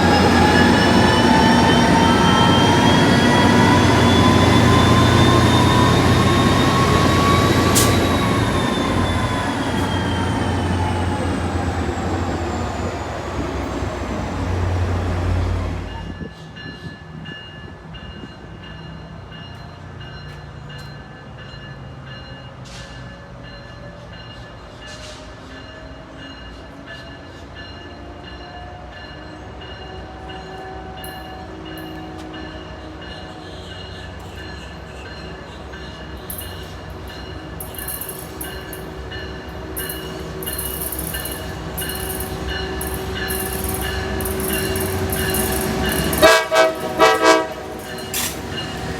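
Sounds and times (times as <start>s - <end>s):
diesel train rumble: 0.0s - 17.3s, 28.9s - 48.9s.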